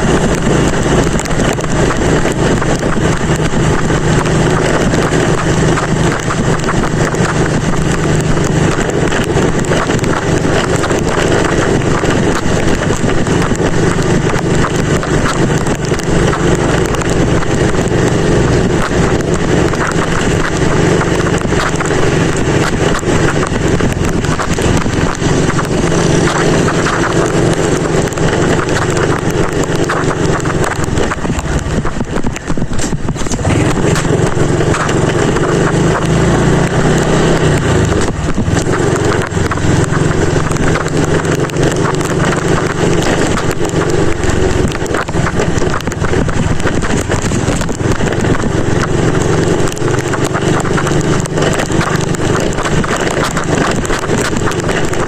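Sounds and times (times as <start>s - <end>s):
motorcycle engine running: 0.0s - 55.0s
wind noise on microphone: 0.0s - 55.0s.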